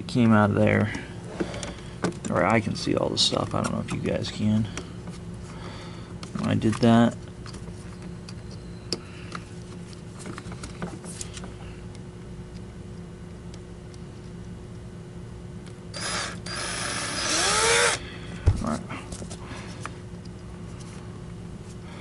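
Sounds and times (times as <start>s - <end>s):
power drill running: 15.9s - 18.0s.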